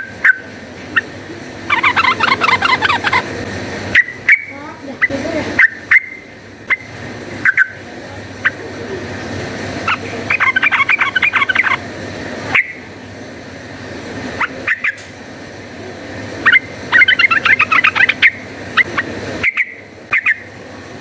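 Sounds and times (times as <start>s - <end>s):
bird calling sharp notes: 0.0s - 3.3s, 9.9s - 11.8s, 16.4s - 20.5s
bird bubbling chatter: 0.2s - 3.3s, 9.8s - 11.8s, 16.4s - 20.5s.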